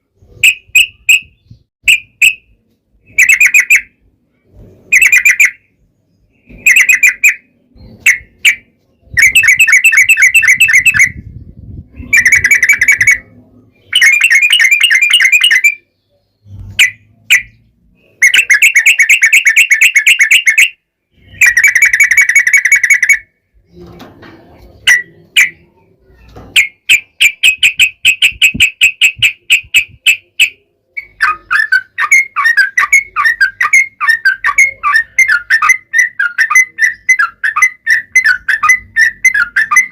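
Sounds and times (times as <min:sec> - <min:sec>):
bird singing rapid trills: 0:04.9 - 0:23.9.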